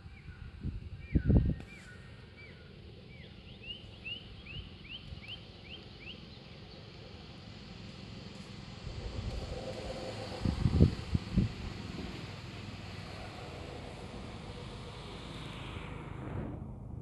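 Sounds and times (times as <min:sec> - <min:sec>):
bird chirping: 0:01.0 - 0:06.8
low steady rumble: 0:06.2 - 0:17.0.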